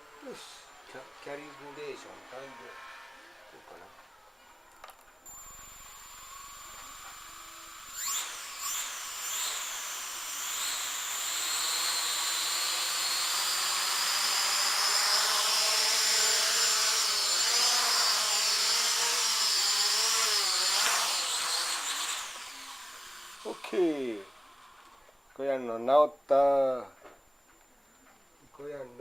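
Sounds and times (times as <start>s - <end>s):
drone motors whining: 5.3s - 25.1s.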